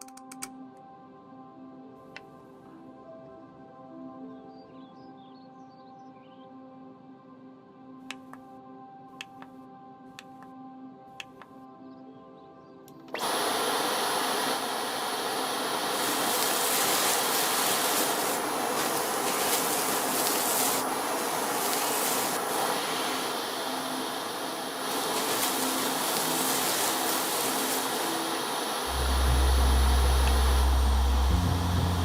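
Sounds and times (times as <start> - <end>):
vacuum cleaner running: 13.2 - 32.0.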